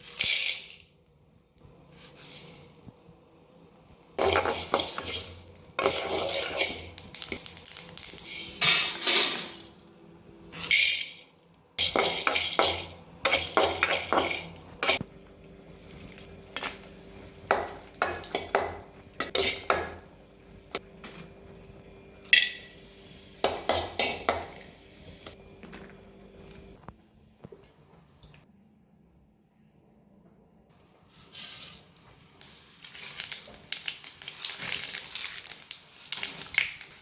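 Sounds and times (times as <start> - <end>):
metal spoon scraping a pot: 4.2 - 7.0.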